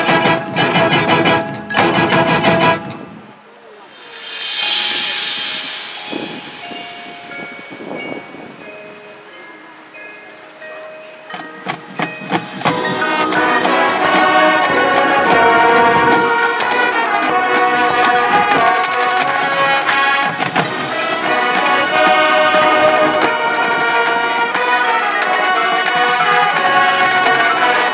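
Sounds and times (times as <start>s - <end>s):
marching band playing: 0.0s - 9.8s, 11.1s - 27.9s
drum hits: 11.6s - 24.0s.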